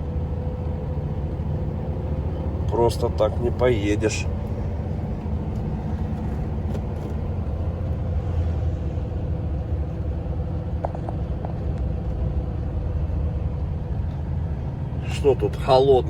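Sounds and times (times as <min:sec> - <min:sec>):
truck diesel engine rumble: 0:00.0 - 0:16.0
tyres on road: 0:00.0 - 0:16.0.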